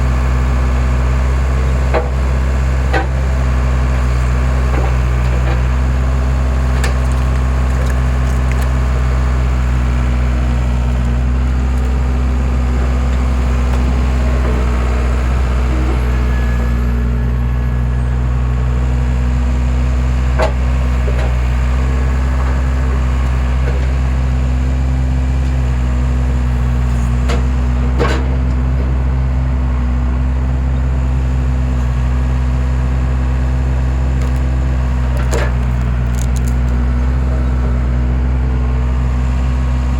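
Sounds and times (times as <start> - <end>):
skid steer engine running: 0.0 - 39.9
wood splitting cracks: 6.7 - 9.2, 34.2 - 36.8.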